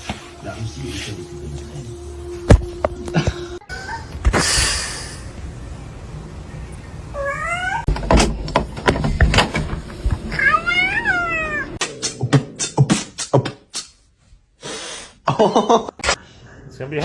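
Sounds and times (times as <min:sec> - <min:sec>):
cat meowing: 0:07.2 - 0:07.9, 0:10.3 - 0:11.8.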